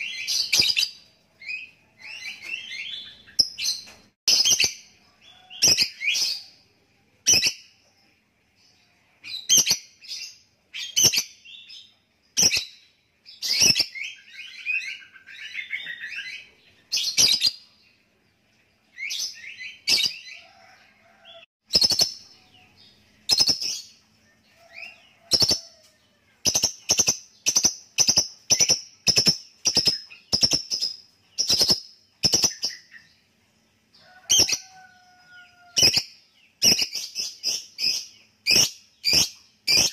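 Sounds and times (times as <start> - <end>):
bird warbling chatter: 24.8 - 25.7.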